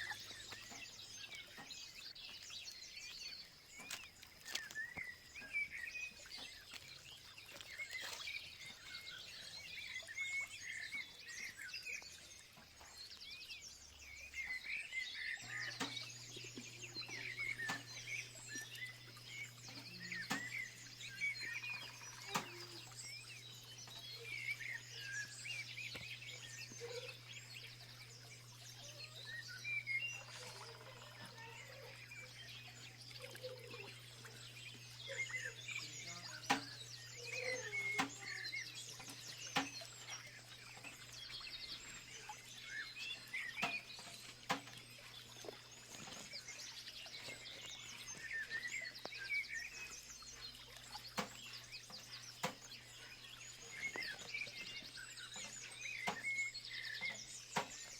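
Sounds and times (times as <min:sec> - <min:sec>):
small birds chirping: 0:00.0 - 0:57.9
steady low hum: 0:15.2 - 0:57.8.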